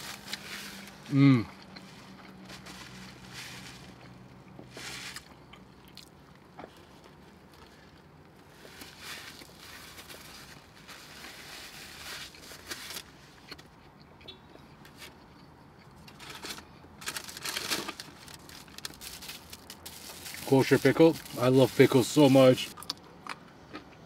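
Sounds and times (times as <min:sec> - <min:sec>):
soft chewing: 0:00.3 - 0:02.8, 0:13.4 - 0:16.9
plastic wrapper crinkling: 0:16.1 - 0:22.8.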